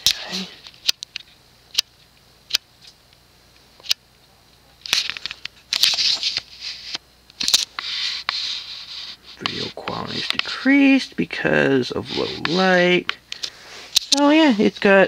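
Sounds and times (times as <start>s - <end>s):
rustling and scraping: 4.8s - 10.7s, 11.8s - 15.0s.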